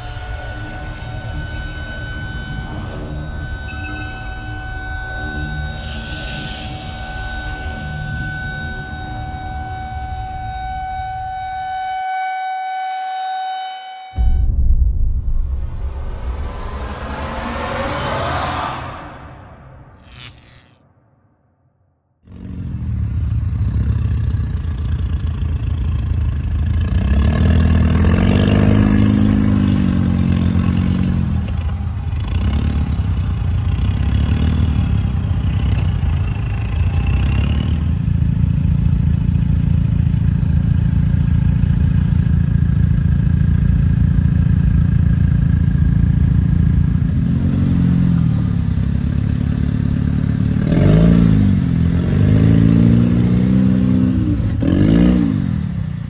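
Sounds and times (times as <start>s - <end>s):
off-road vehicle engine revving: 22.3s - 56.0s.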